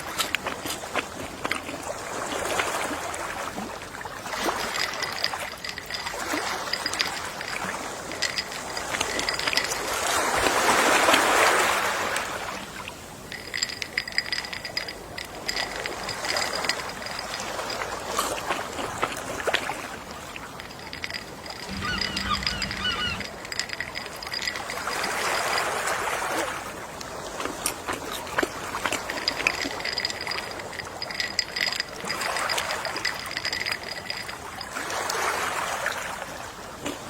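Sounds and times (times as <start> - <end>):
sea waves washing on shore: 0.0 - 37.0
small clicks in the wash: 0.0 - 37.0.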